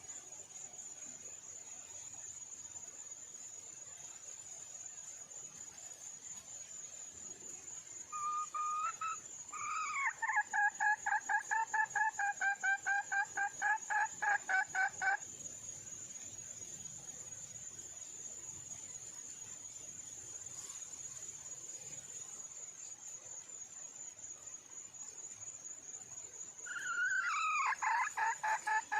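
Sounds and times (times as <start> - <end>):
high insect trill: 0.0 - 28.9
junglefowl hen clucking call: 8.1 - 15.2, 26.7 - 28.9.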